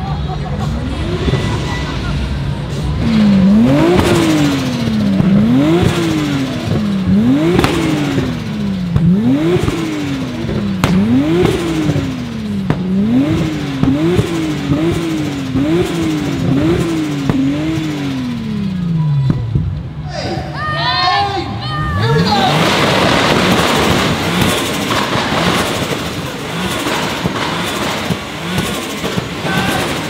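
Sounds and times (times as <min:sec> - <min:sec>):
car engine revving: 0:00.0 - 0:20.1, 0:21.7 - 0:30.0
sharp engine cracks: 0:22.4 - 0:30.0.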